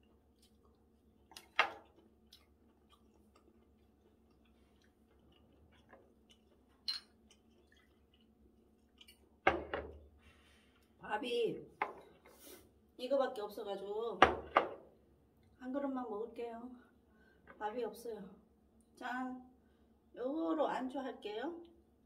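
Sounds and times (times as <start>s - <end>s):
person chewing food: 0.0s - 9.4s
tableware clicks and knocks: 6.9s - 7.1s.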